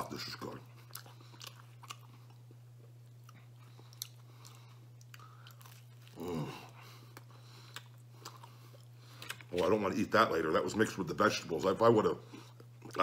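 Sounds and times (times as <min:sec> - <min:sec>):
man chewing pizza crust: 0:00.0 - 0:11.0, 0:11.8 - 0:13.0
steady low hum: 0:00.0 - 0:13.0
man grunting: 0:06.2 - 0:06.7.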